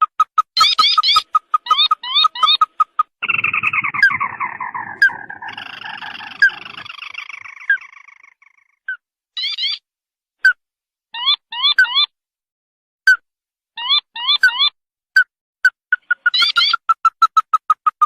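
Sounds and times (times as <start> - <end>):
crake calls: 0.4 - 8.8.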